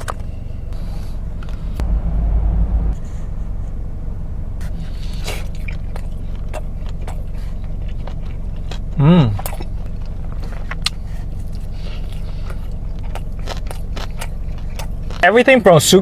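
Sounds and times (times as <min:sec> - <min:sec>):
car cabin hum: 0:01.7 - 0:04.7
person chewing: 0:05.2 - 0:15.2.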